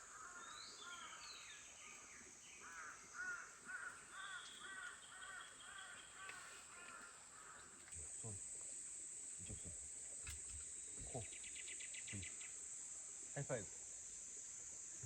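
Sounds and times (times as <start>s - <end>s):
crow cawing: 0.0s - 1.2s, 2.6s - 7.8s
high insect drone: 0.0s - 15.0s.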